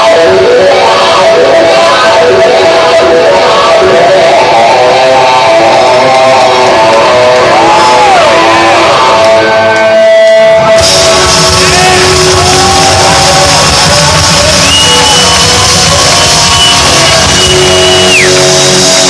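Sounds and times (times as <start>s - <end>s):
crowd shouting: 0.0s - 19.0s
high held bending note: 9.8s - 19.0s.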